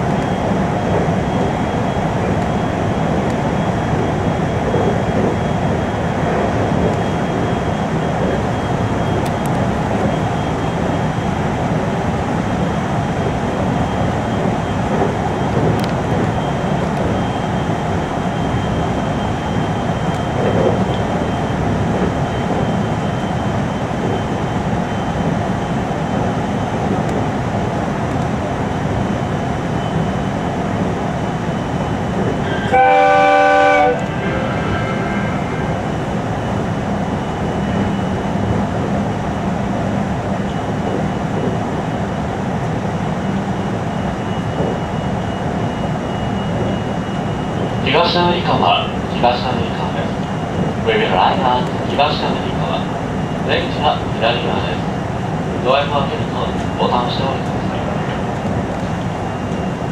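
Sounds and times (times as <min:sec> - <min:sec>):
train wheels rumbling: 0:00.0 - 0:59.9
high whine: 0:32.4 - 0:38.1.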